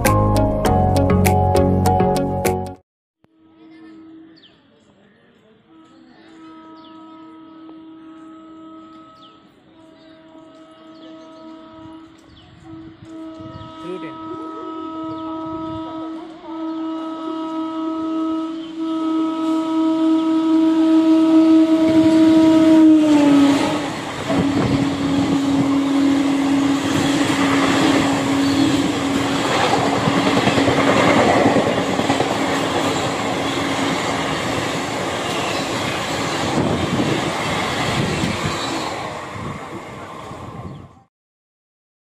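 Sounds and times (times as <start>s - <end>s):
train coaches clattering past: 4.8s - 19.8s, 20.8s - 41.0s
locomotive horn blast: 5.6s - 37.3s.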